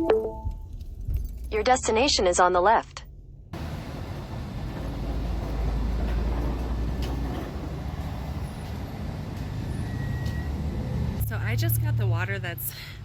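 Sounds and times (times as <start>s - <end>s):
motor vehicle rumble: 3.2s - 13.0s.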